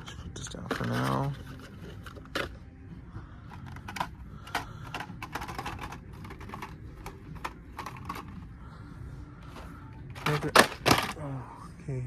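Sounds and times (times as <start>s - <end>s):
toy cars in plastic packs clicking: 0.0s - 2.6s, 3.5s - 8.4s, 9.5s - 11.3s.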